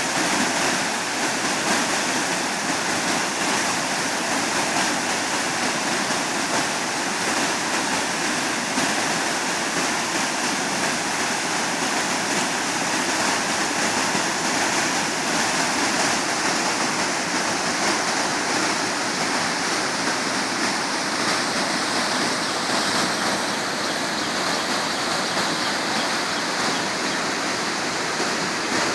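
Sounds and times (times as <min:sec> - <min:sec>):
waterfall roaring: 0:00.0 - 0:28.9.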